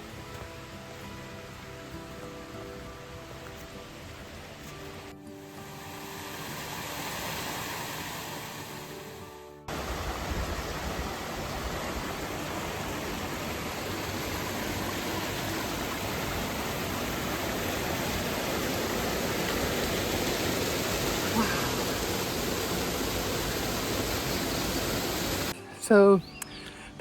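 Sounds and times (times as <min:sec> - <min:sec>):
background music: 0:00.0 - 0:10.3, 0:25.4 - 0:27.0
waterfall rushing: 0:00.0 - 0:25.6.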